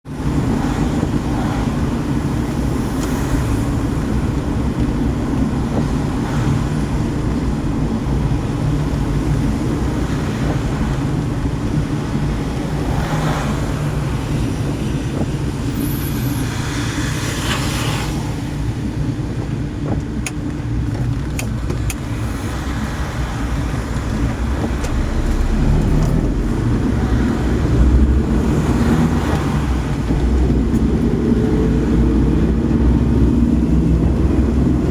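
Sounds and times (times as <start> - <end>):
car engine and tyre rumble: 0.0 - 34.9
tyres hissing on wet road: 12.0 - 19.1.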